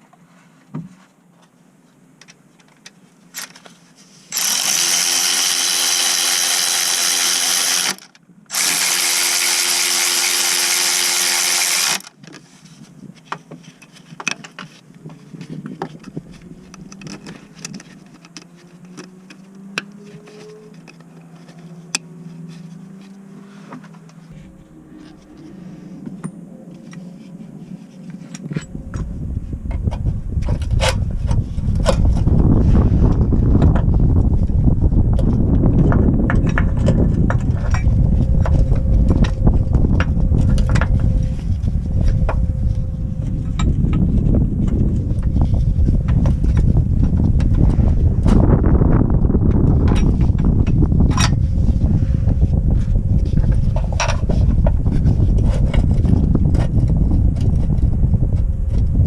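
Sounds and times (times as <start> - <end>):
cordless power tool running: 4.3 - 12.2
low rumble: 24.2 - 59.0.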